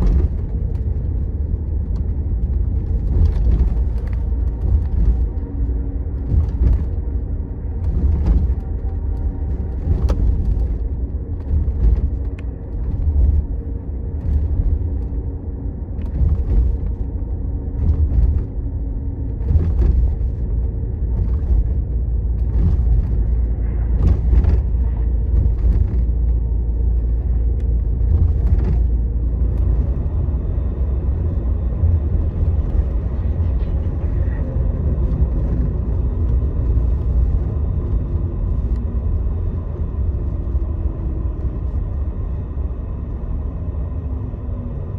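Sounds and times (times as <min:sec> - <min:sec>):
bus engine and road rumble: 0:00.0 - 0:44.9.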